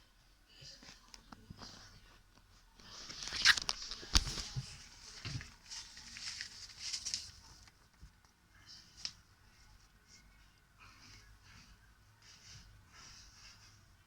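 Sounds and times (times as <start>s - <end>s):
paper rustling and crinkling: 2.8s - 7.8s.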